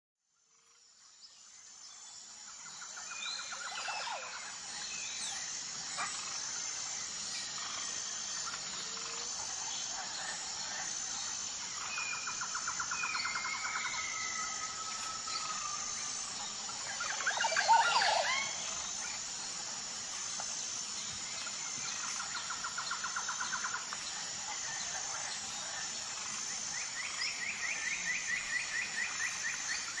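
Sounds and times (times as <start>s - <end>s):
birds trilling: 9.4s - 19.2s
sweeping bird calls: 11.2s - 19.2s.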